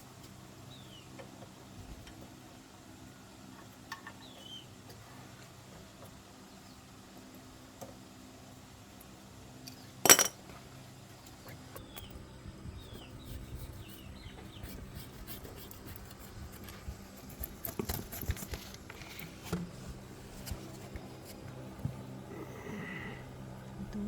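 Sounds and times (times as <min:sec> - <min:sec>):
metal tools clinking and clattering: 0:10.1 - 0:10.4
faint bird chirps: 0:11.4 - 0:15.2.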